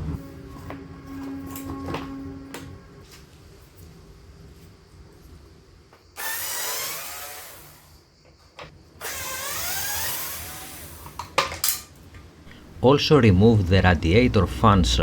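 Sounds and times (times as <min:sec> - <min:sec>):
cordless screwdriver running: 0:06.2 - 0:07.9, 0:09.0 - 0:11.1.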